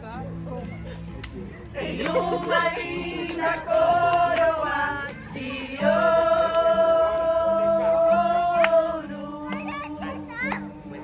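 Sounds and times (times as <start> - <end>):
group singing a hymn: 1.7 - 10.3.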